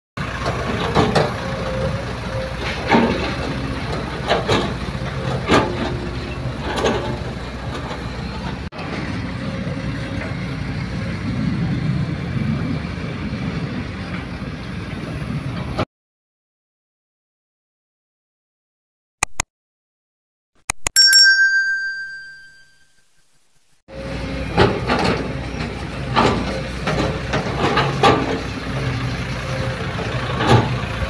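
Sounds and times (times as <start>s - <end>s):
diesel earthmoving machinery running: 0.2s - 15.8s, 23.9s - 31.0s.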